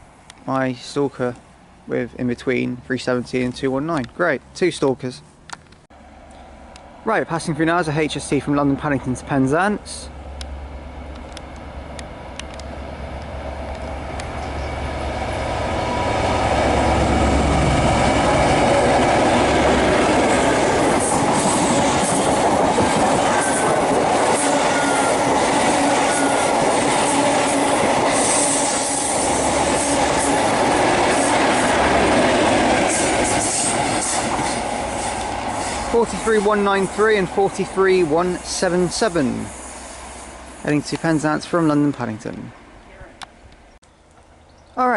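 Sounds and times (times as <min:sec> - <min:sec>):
diesel train engine: 0:05.5 - 0:44.9
train wheels clacking on rails: 0:12.4 - 0:39.4.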